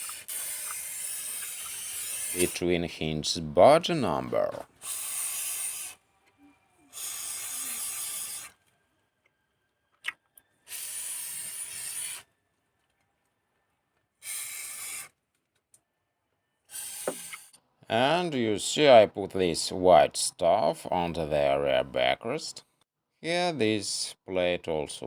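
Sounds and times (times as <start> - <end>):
hissing spray from a nozzle: 0.0 - 2.6, 4.8 - 6.0, 6.9 - 8.5.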